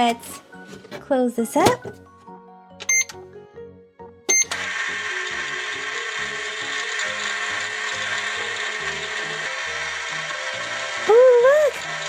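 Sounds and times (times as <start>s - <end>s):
soft background music: 0.0s - 12.0s
toy microwave ding: 2.8s - 3.2s, 4.3s - 4.7s.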